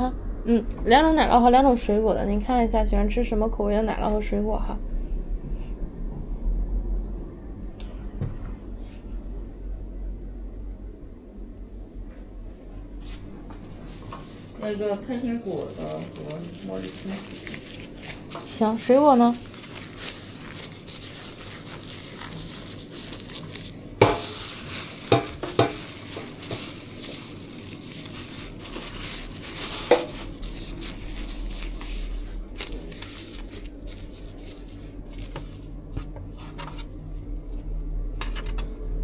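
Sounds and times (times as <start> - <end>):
scraping and stirring: 13.8 - 37.6, 38.2 - 38.8
utensils and containers clattering: 15.8 - 31.9.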